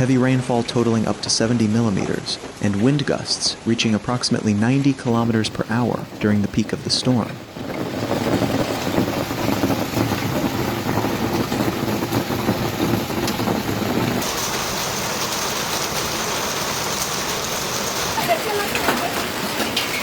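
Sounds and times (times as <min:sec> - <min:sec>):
heavy rain pouring: 0:05.1 - 0:20.0.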